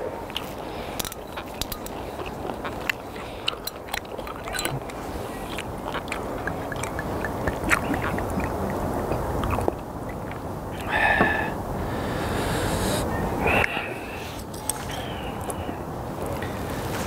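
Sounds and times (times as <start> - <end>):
chewing with wet clicks: 0.3 - 10.9.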